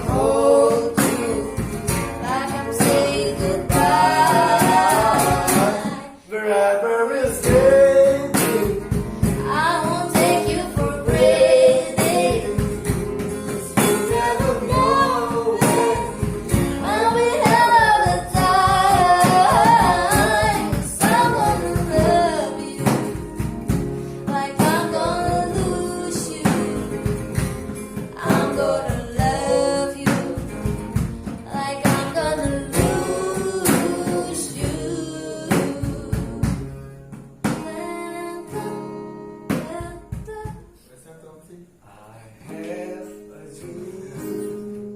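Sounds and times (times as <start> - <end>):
percussion beat: 0.0 - 6.2, 7.2 - 37.8
person singing: 0.0 - 23.2, 24.3 - 27.4, 28.1 - 36.8
guitar: 0.0 - 41.0, 41.7 - 44.9.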